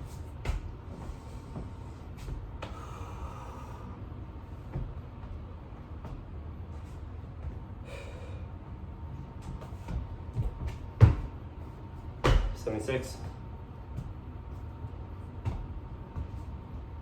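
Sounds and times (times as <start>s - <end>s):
person breathing hard: 1.0s - 4.1s, 7.8s - 8.6s.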